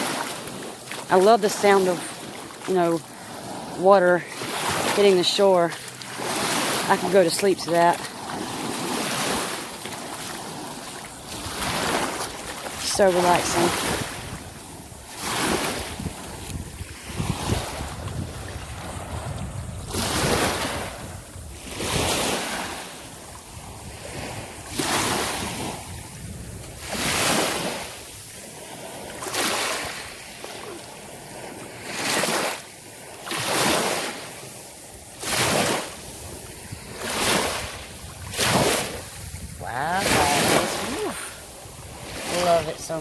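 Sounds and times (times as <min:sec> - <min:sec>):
waves washing on sandy beach: 0:00.0 - 0:43.0
wind on microphone: 0:10.2 - 0:30.3, 0:35.5 - 0:43.0.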